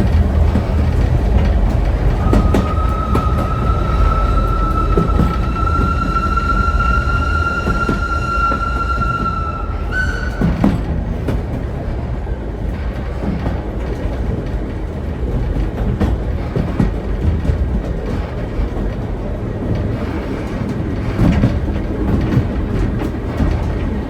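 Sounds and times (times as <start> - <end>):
steam train rumbling on rails: 0.0 - 24.0
high wheel squeal: 2.0 - 10.9.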